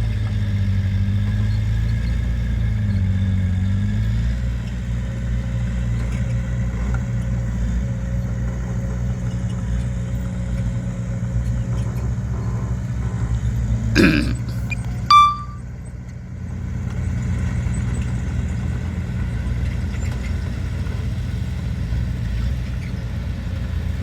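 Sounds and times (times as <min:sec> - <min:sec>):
heavy diesel engine droning: 0:11.7 - 0:15.6.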